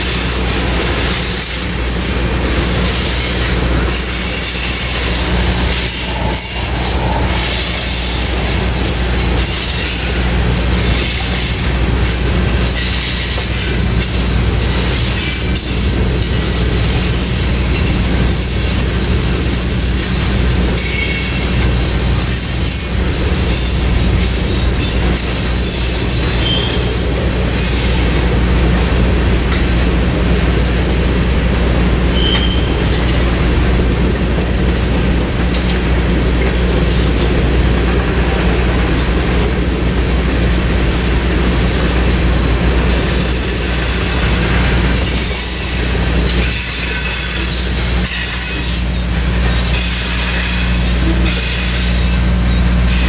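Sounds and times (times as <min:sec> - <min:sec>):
freight cars rumbling on track: 0:00.0 - 0:53.0
high-pitched wheel squeals: 0:04.0 - 0:10.2, 0:24.5 - 0:27.8, 0:32.2 - 0:32.8.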